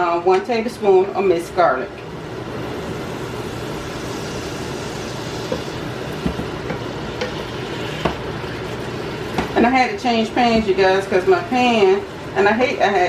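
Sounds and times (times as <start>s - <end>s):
food sizzling in hot oil: 2.1s - 12.4s.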